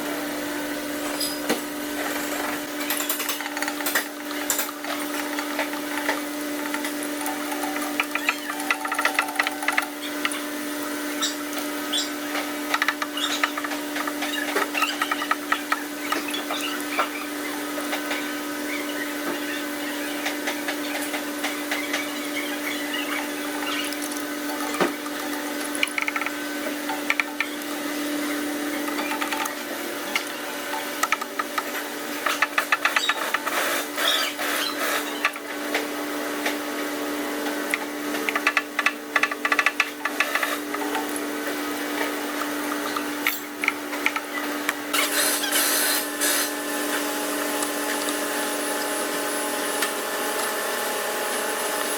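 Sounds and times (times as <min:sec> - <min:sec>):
small motor humming: 0:02.0 - 0:35.4.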